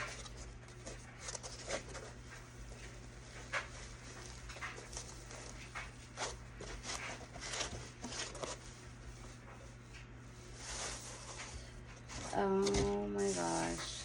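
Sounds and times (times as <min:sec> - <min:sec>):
packaging rustling and crinkling: 0:00.0 - 0:09.1.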